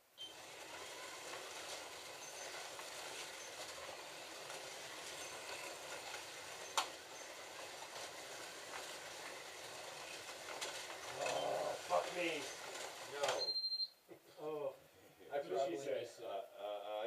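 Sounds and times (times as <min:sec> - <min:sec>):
slot car motors whirring: 0:00.2 - 0:13.5.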